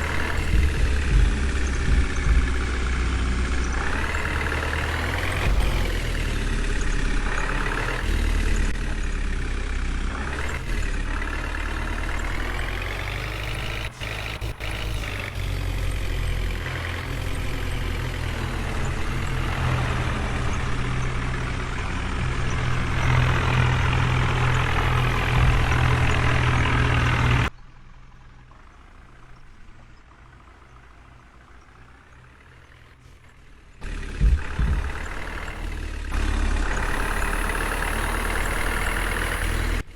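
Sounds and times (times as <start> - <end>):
heavy diesel engine revving: 0.0 - 27.6, 28.2 - 39.9.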